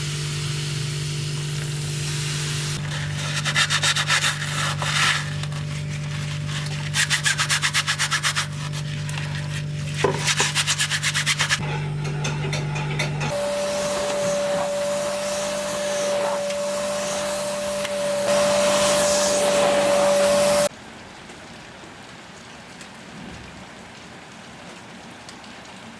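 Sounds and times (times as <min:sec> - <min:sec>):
low motor hum: 0:11.6 - 0:20.7
vacuum cleaner motor whining: 0:13.3 - 0:20.7.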